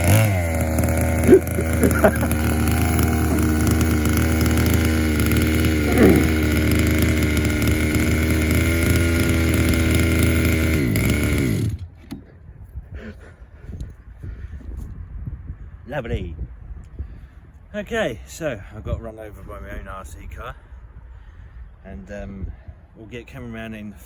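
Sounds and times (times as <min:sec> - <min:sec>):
two-stroke engine idling and revving: 0:00.0 - 0:11.9.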